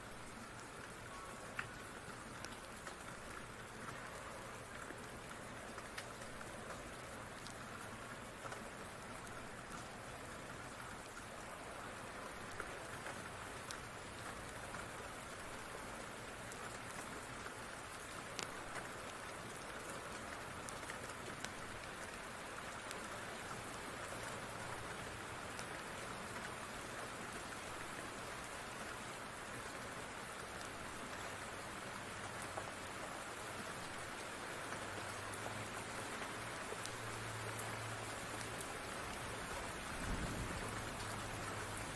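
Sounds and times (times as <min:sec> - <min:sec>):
rain falling: 0:00.0 - 0:41.9
wood fire crackling: 0:00.2 - 0:10.0, 0:16.5 - 0:22.0, 0:33.7 - 0:41.9.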